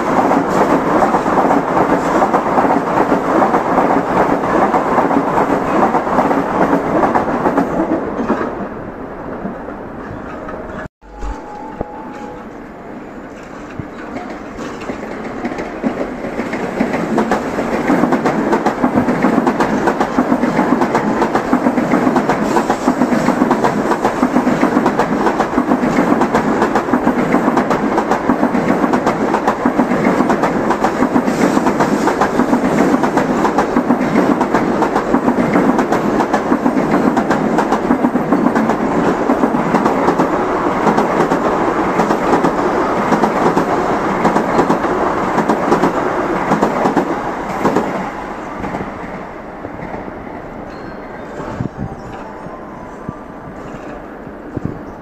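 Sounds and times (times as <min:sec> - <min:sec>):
trains passing rumble: 0:00.0 - 0:55.0
wheels clattering on rails: 0:13.2 - 0:48.0, 0:53.5 - 0:54.9.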